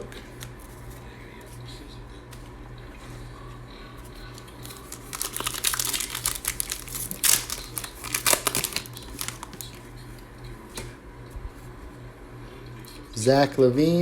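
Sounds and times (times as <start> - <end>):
steady low hum: 0.0 - 14.0
plastic wrapper crackling: 4.3 - 9.9.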